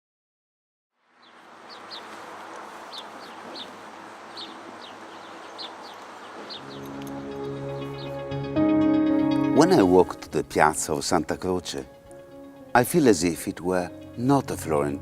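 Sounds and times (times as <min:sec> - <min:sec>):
high falling bird chirps: 0:01.2 - 0:08.5.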